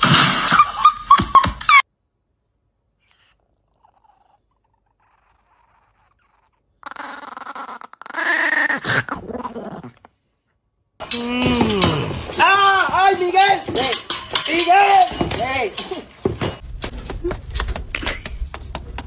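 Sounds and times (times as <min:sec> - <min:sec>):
animal drawn-out call: 0:03.1 - 0:10.0.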